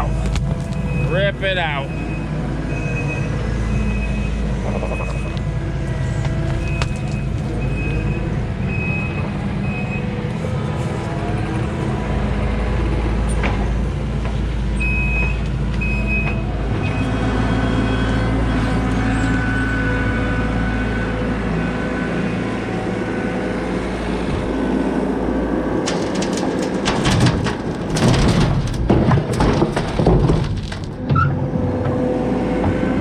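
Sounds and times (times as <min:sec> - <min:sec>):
diesel engine under load: 0:00.0 - 0:33.0
backup alarm beeping: 0:00.8 - 0:05.4.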